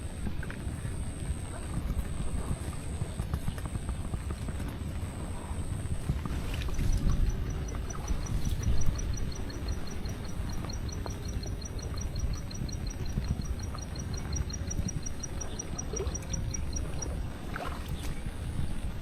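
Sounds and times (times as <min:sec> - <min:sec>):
low rumbling outdoor noise: 0:00.0 - 0:19.0
thin high chirping: 0:06.7 - 0:17.2.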